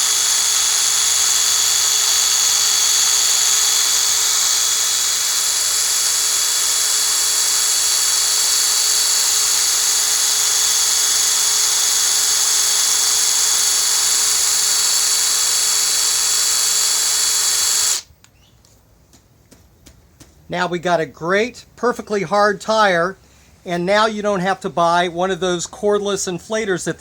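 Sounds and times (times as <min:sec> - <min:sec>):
drill driven pump whining: 0:00.0 - 0:18.1.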